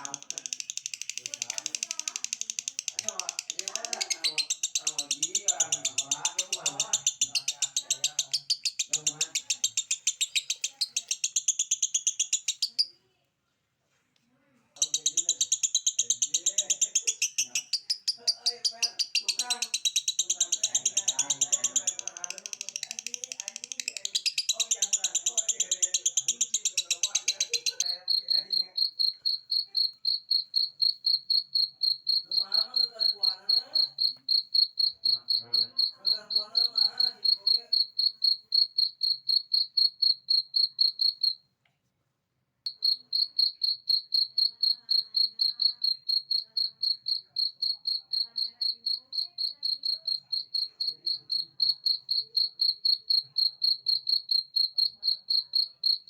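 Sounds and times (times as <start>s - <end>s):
cricket chirping: 0.0s - 13.0s, 14.8s - 41.4s, 42.7s - 56.0s.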